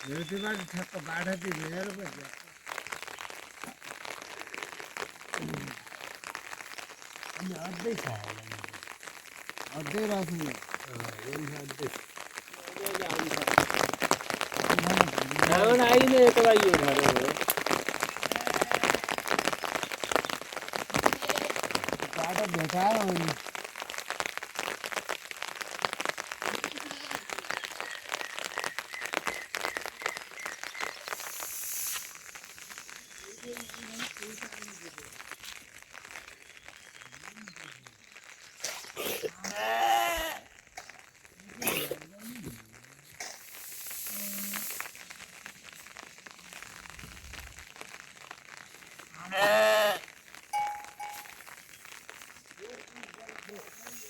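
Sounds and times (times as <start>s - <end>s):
rain falling: 0.0s - 54.0s
livestock bleating: 18.3s - 19.2s, 39.4s - 40.4s, 49.1s - 50.1s
short hiss: 31.0s - 33.3s, 43.2s - 45.3s
short high notes: 50.6s - 51.5s.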